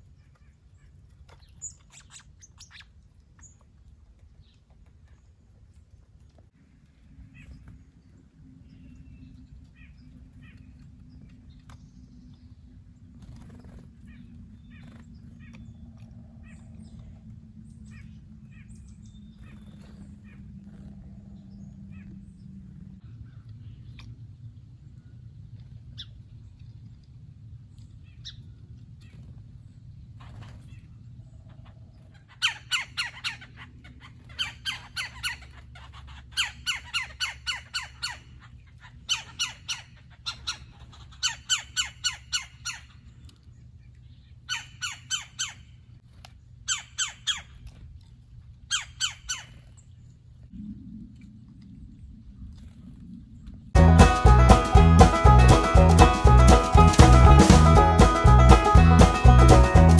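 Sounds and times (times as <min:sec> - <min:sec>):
small birds chirping: 0:00.0 - 0:48.0, 0:48.6 - 0:50.6
steady low rumble: 0:06.4 - 0:32.3, 0:50.3 - 0:59.9.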